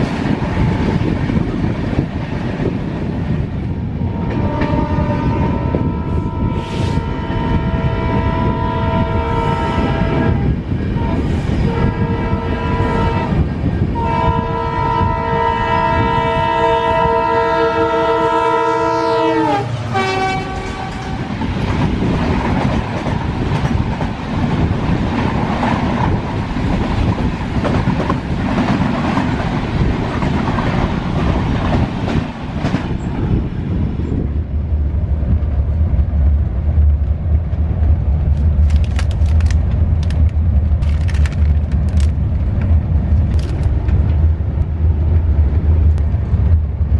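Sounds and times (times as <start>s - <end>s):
train coaches clattering on track: 0.0s - 5.9s, 19.1s - 46.9s
locomotive horn blasts: 4.1s - 13.4s, 14.0s - 21.4s.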